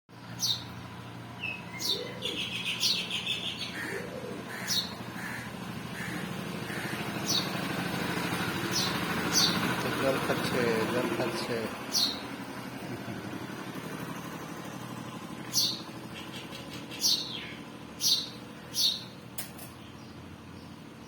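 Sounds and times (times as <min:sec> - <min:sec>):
small birds chirping: 0:00.1 - 0:12.5, 0:15.4 - 0:21.0
buzzy bird trill: 0:01.4 - 0:07.7, 0:08.6 - 0:09.8, 0:11.8 - 0:12.4, 0:15.5 - 0:19.2.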